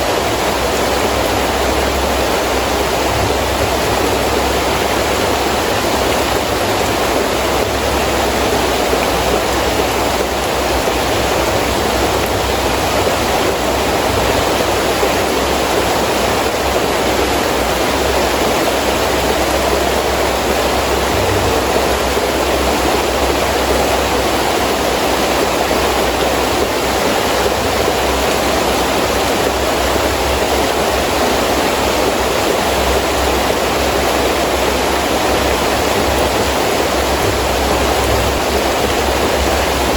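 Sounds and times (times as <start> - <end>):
heavy rain pouring: 0.0 - 39.9
wind: 0.0 - 39.9
low rumble: 19.5 - 24.4, 35.4 - 39.9.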